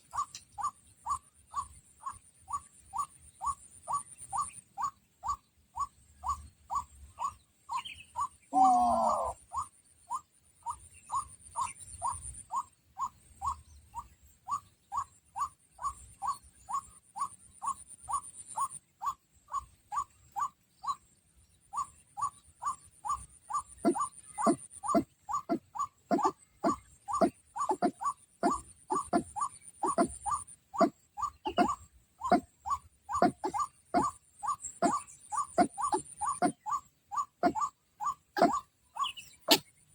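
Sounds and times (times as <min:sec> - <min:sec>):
louder lower bird call: 0:23.8 - 0:39.7
waterhen short repeated call: 0:23.8 - 0:39.7.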